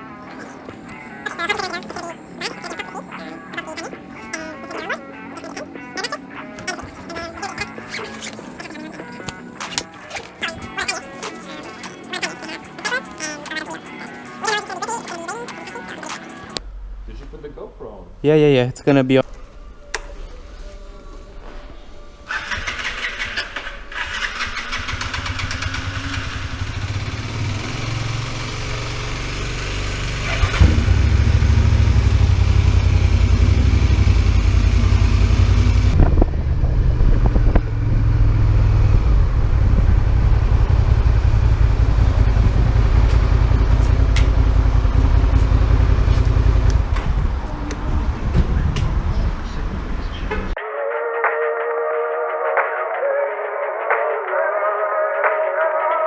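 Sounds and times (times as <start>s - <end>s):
motorcycle engine starting and idling: 22.3s - 49.2s.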